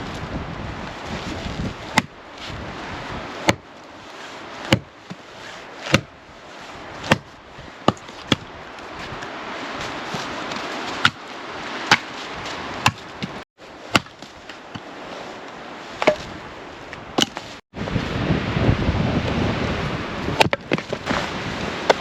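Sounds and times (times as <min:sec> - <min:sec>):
steady rushing noise: 0:00.0 - 0:22.0
axe chopping wood: 0:01.9 - 0:02.2, 0:03.4 - 0:03.7, 0:04.7 - 0:05.2, 0:05.8 - 0:06.2, 0:07.0 - 0:08.5, 0:11.0 - 0:11.2, 0:11.9 - 0:12.1, 0:12.8 - 0:14.9, 0:16.0 - 0:16.3, 0:17.2 - 0:17.5, 0:20.4 - 0:21.2.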